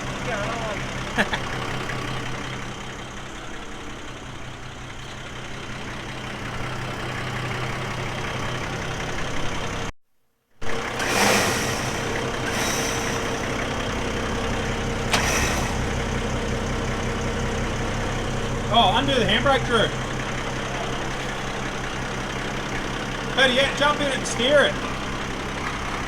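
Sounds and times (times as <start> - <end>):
truck engine idling: 0.0 - 9.9, 10.6 - 26.0
short noisy bursts: 10.7 - 14.1, 15.1 - 16.0.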